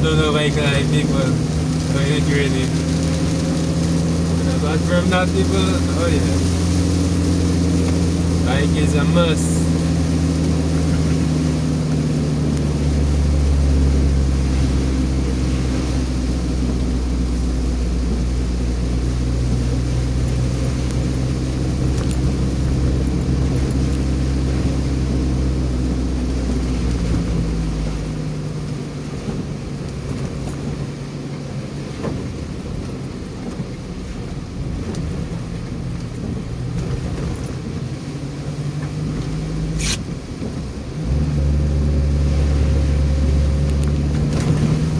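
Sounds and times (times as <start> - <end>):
car engine hum: 0.0 - 44.9
road noise: 0.0 - 44.9
sharp click: 39.8 - 40.1.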